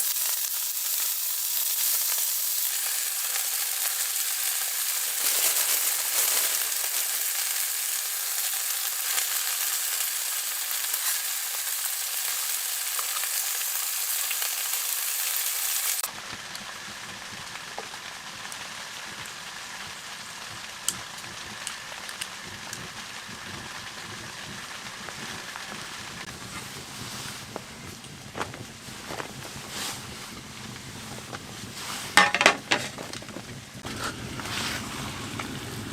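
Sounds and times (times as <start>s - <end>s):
food sizzling in a pan: 0.0s - 27.6s.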